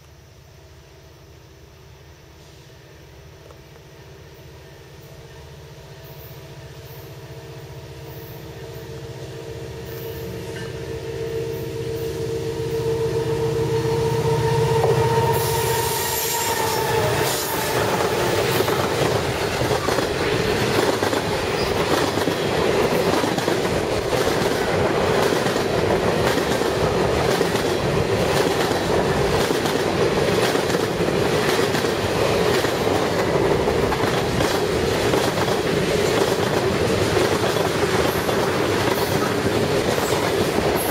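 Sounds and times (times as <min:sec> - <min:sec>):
locomotive drone: 0:03.2 - 0:40.9
train wheels clattering over rails: 0:16.2 - 0:40.9.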